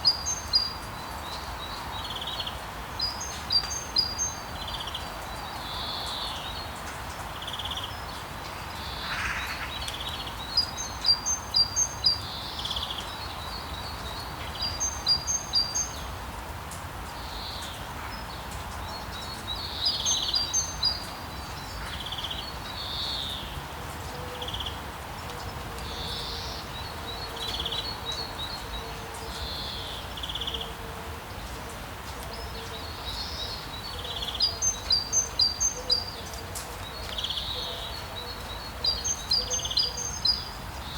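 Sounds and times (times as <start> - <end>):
rain hiss: 0.0 - 40.9
birds chirping: 32.4 - 40.9.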